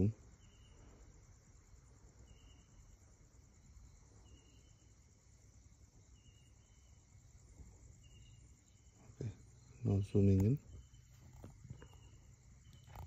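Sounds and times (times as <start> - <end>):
cricket trill: 0.0 - 13.0
short insect chirp: 0.0 - 13.0.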